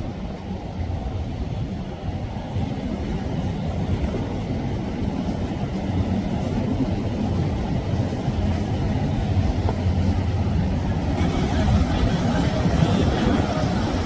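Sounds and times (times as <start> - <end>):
boat engine running: 9.3 - 14.0.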